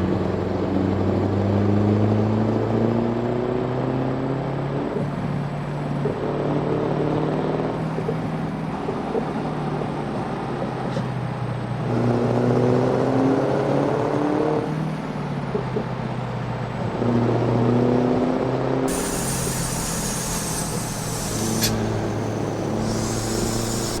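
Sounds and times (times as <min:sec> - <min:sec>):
diesel truck engine running: 0:18.9 - 0:24.0.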